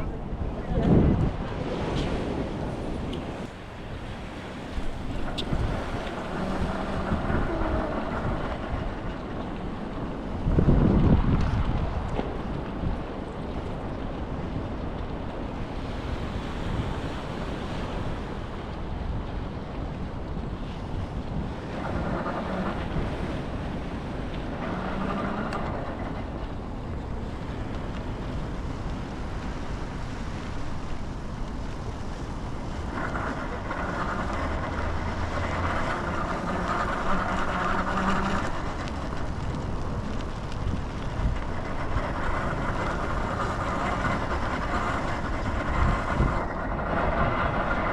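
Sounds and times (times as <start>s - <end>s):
steady low rumble: 0.0s - 47.9s
wind buffeting microphone: 0.0s - 47.9s
vehicles passing: 30.4s - 47.9s.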